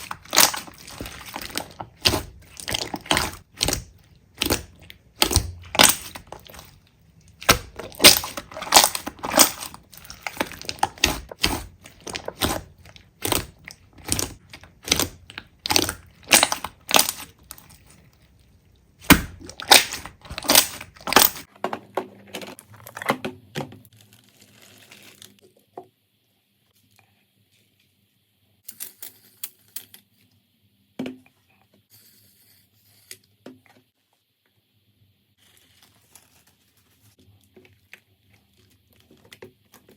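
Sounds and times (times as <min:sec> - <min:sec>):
slime crackling and popping: 0:00.0 - 0:17.9, 0:19.0 - 0:21.5.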